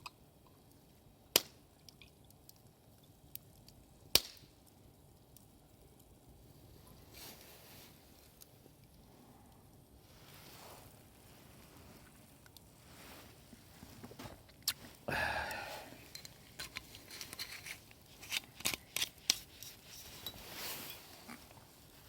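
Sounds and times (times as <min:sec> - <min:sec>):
rustling: 0:06.6 - 0:08.6, 0:10.0 - 0:22.0.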